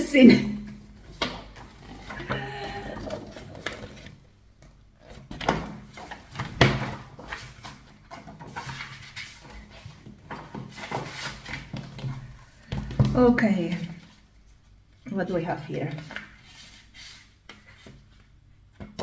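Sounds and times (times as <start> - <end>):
paper and packaging rustling: 0.7 - 14.8.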